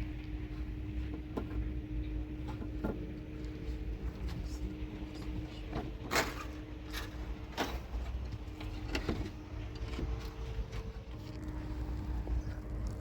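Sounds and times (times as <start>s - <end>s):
faint hum: 0.0s - 13.0s
low rumble: 8.1s - 13.0s.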